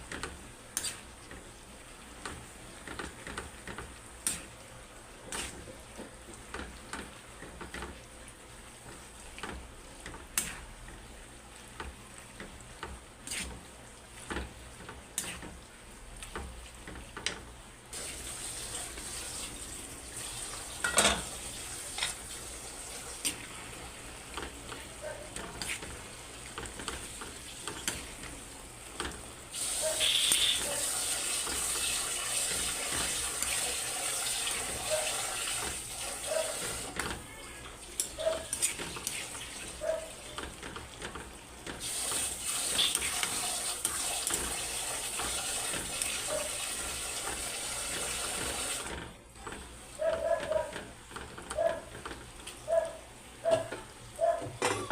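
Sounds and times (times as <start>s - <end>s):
kitchen knocks and clatter: 20.8s - 21.3s, 53.4s - 54.9s
tap running: 38.0s - 54.8s.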